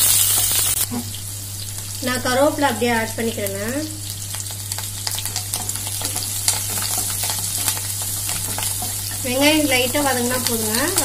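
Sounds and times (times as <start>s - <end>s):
onions sizzling in hot oil: 0.0s - 11.0s
wooden spatula stirring: 5.2s - 11.0s.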